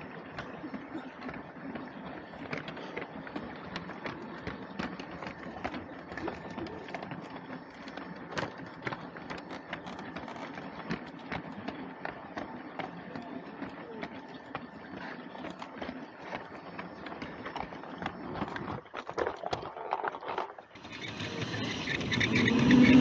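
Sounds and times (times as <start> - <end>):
train clicking on plastic track: 0.0 - 23.0
toy train motor whirring: 15.2 - 23.0.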